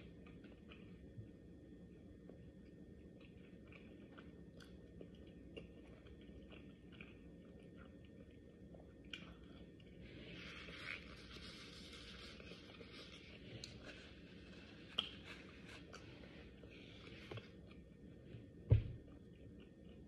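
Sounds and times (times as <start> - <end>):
person chewing food: 0.0 - 1.4, 2.2 - 20.0.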